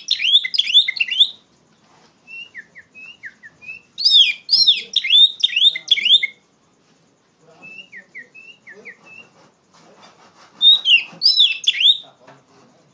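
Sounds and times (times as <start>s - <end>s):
bird singing whistled phrases: 0.0s - 1.4s, 2.3s - 6.4s, 7.6s - 9.3s, 10.6s - 12.1s.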